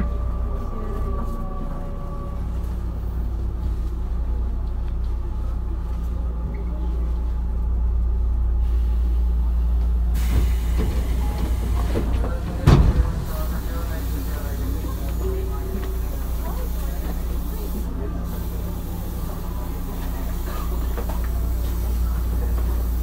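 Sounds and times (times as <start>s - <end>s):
train wheels rumbling on rails: 0.0s - 23.0s
hiss: 10.1s - 11.8s, 13.2s - 23.0s.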